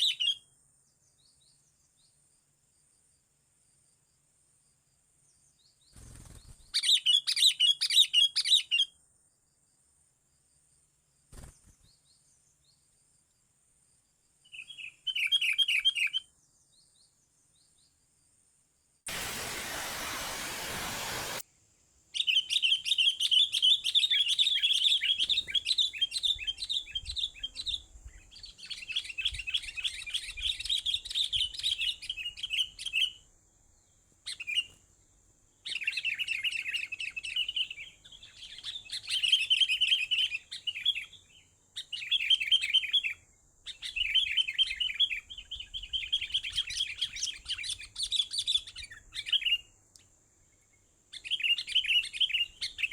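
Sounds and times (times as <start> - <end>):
even hiss: 19.1 - 21.4.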